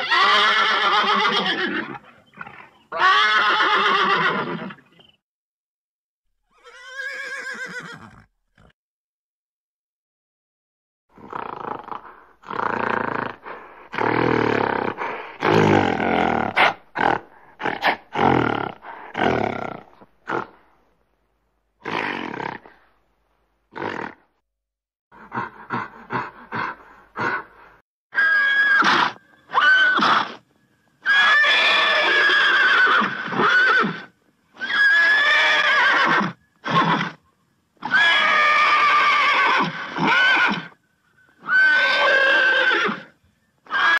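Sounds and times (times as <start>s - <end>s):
horses neighing: 0.0s - 4.8s, 6.5s - 8.7s, 31.0s - 37.2s, 37.8s - 43.9s.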